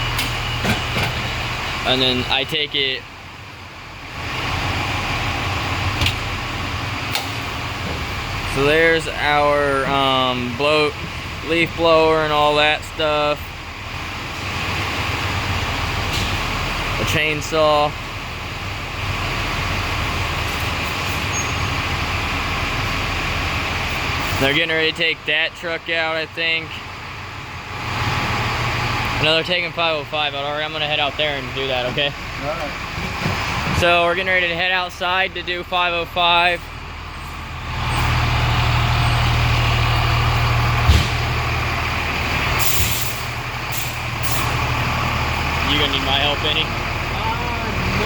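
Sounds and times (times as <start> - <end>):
fire truck engine running: 0.0 - 48.0
sharp knock: 40.9 - 41.3
air-brake hisses: 42.6 - 44.6.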